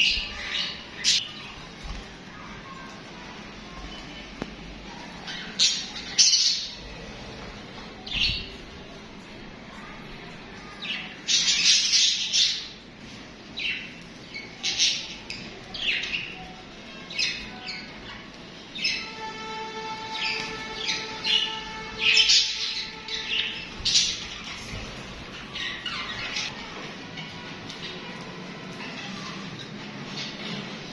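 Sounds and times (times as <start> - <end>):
budgerigars chirping and squawking: 20.1 - 26.5.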